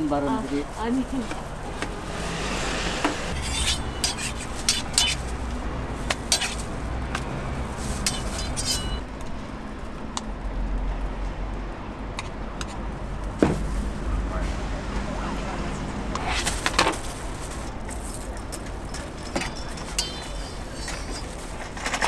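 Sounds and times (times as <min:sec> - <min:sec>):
metal utensils clinking: 0:00.0 - 0:09.1, 0:16.2 - 0:22.0.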